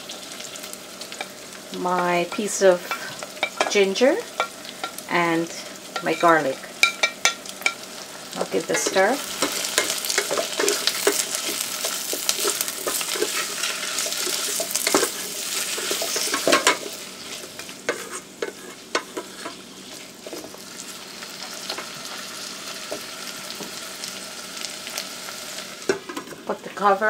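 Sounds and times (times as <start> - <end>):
onions sizzling in hot oil: 0.0 - 27.0
wooden spoon scraping a pot: 8.7 - 20.5.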